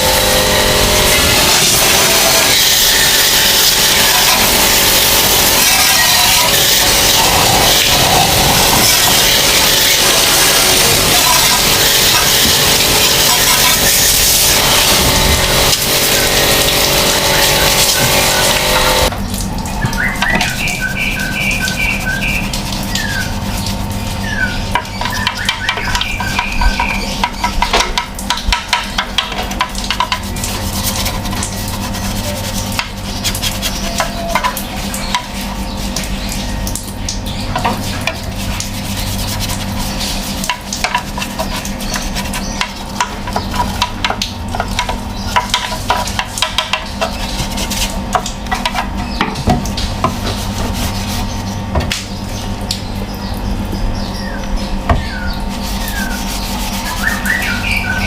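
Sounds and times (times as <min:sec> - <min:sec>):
rubbing and scraping on metal unit: 0:00.0 - 0:19.1, 0:20.2 - 0:36.4, 0:37.4 - 0:52.3, 0:54.9 - 0:58.0
steady low hum: 0:00.0 - 0:58.0.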